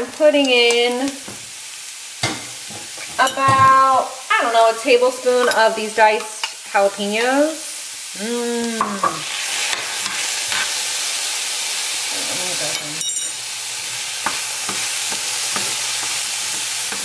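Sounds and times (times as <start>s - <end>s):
vegetables sizzling in oil: 0.0s - 17.0s
wooden spoon stirring and scraping: 13.8s - 17.0s.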